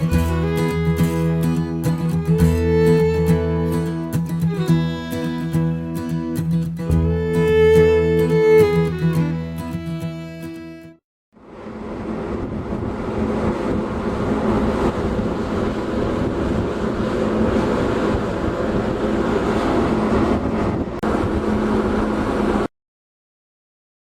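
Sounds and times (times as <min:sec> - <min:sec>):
engine drone: 0:00.0 - 0:22.7
wind on microphone: 0:11.5 - 0:22.7.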